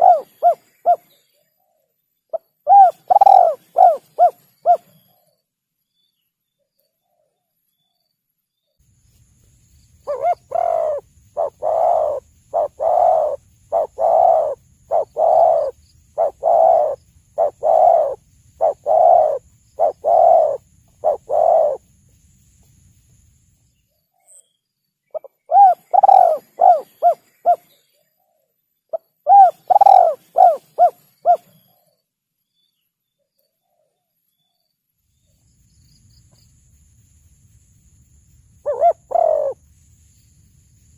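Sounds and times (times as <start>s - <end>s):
dove cooing: 0.0s - 1.1s, 2.3s - 4.9s, 10.1s - 21.8s, 25.2s - 27.7s, 28.9s - 31.6s, 38.6s - 39.6s.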